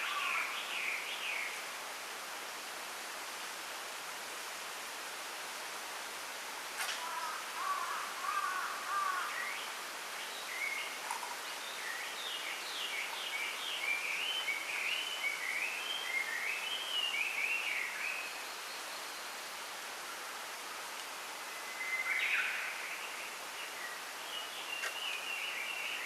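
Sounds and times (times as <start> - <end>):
bamboo leaves rustling in wind: 0.0 - 26.0
small songbirds singing: 7.1 - 19.4, 21.6 - 26.0.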